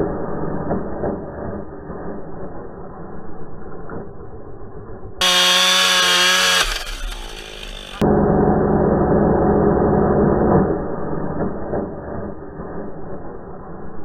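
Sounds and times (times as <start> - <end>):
chainsaw at full throttle: 5.2 - 8.0
muffled engine running: 5.2 - 10.3.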